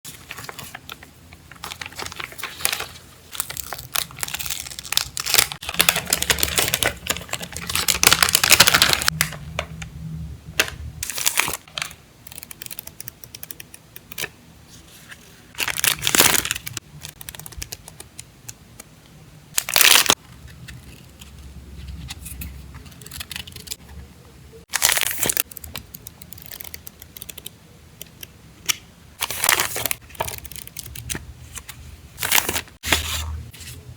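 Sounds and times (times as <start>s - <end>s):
wrapping crinkling and tearing: 0.3s - 9.2s, 15.5s - 17.6s, 19.6s - 20.2s, 24.7s - 25.5s.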